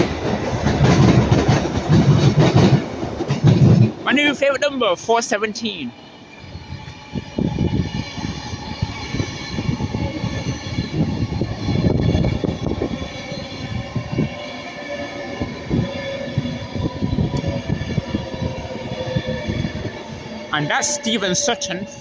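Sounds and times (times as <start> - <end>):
train rumble with wheel knocks: 0.0 - 4.1, 15.2 - 20.4.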